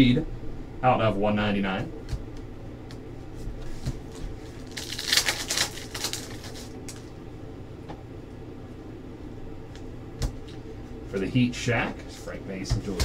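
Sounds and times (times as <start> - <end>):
wrapper rustling and crinkling: 4.0 - 7.1.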